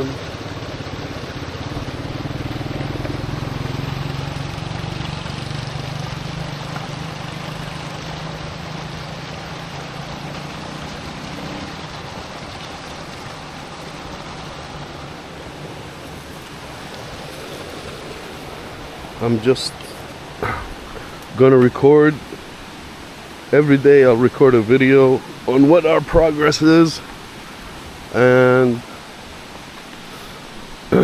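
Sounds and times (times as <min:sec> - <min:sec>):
small engine running: 0:00.0 - 0:20.1
stream rushing: 0:00.0 - 0:31.0.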